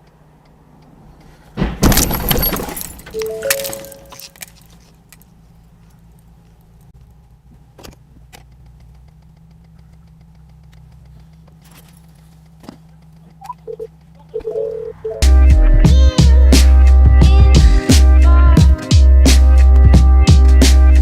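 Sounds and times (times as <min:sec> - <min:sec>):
car engine humming: 0:00.0 - 0:21.0
crash: 0:01.6 - 0:04.6
brief steady tone: 0:03.2 - 0:04.2, 0:13.4 - 0:15.3
faint clicks: 0:05.0 - 0:14.4.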